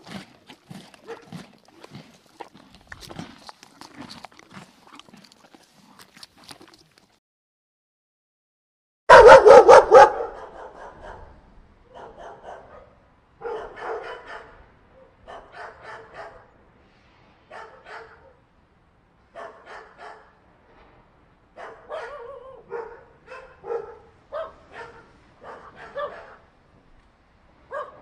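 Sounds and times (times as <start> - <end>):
dog barking: 1.0 - 1.3, 9.1 - 16.5, 17.5 - 18.4, 19.4 - 20.3, 21.6 - 26.4, 27.7 - 28.0.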